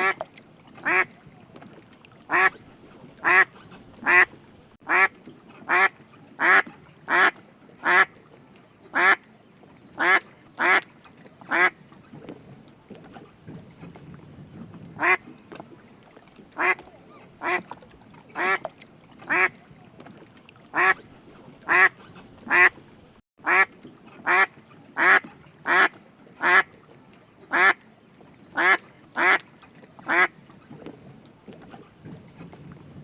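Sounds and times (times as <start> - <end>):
duck quacking: 0.8 - 1.1, 2.3 - 2.6, 3.2 - 4.3, 4.9 - 5.1, 5.7 - 8.1, 9.0 - 9.2, 10.0 - 10.8, 16.6 - 16.8, 19.3 - 19.5, 20.8 - 21.0, 21.7 - 22.8, 23.4 - 26.7, 27.5 - 27.8, 28.6 - 29.4, 30.1 - 30.3.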